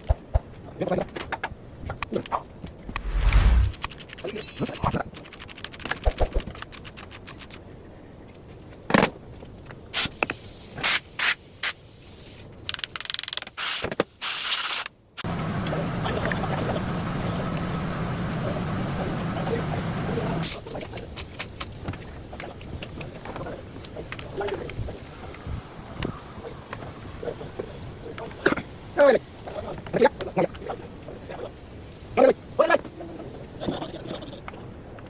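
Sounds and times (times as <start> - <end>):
machine running with low hum: 15.2 - 20.4.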